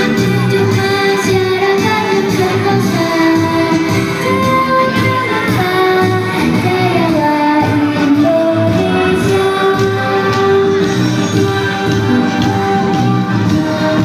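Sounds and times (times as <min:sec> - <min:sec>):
woman singing: 0:00.0 - 0:12.0
musical accompaniment with beat: 0:00.0 - 0:14.0.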